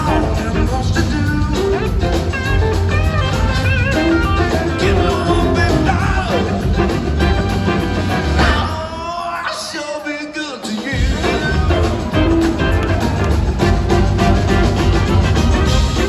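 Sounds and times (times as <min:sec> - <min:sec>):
person singing: 0:00.0 - 0:02.2, 0:04.3 - 0:07.6, 0:08.4 - 0:14.6
heavy bass line: 0:00.0 - 0:08.9, 0:11.0 - 0:16.0
band playing rock music: 0:00.0 - 0:09.3, 0:10.7 - 0:16.0.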